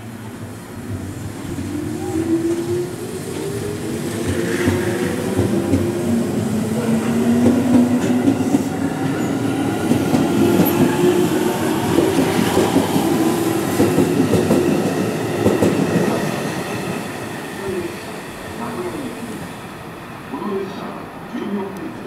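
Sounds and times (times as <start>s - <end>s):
train wheels clattering on rail: 2.5s - 16.4s.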